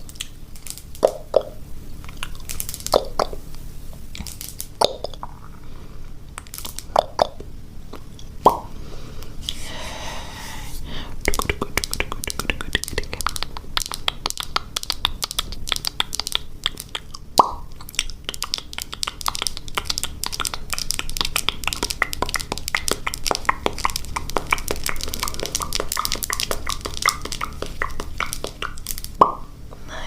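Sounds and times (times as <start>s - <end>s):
wet mouth clicks and smacks: 0.0s - 3.4s, 4.2s - 5.5s, 6.4s - 8.7s, 11.2s - 29.4s
mouth pop: 4.2s - 5.4s, 6.4s - 8.7s, 11.2s - 29.5s.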